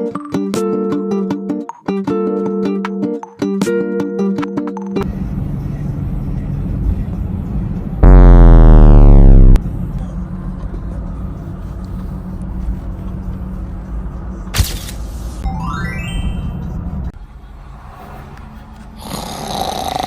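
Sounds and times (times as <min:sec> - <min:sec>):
road noise inside moving car: 0:05.0 - 0:08.0, 0:09.6 - 0:15.4
loud tone sliding downward: 0:08.0 - 0:09.6.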